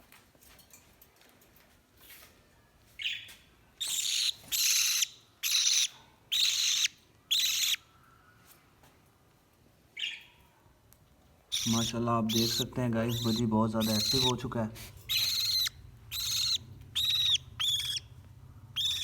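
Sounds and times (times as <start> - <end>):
parrot screeching: 3.8 - 7.8, 11.5 - 14.4, 15.0 - 18.0, 18.8 - 19.0.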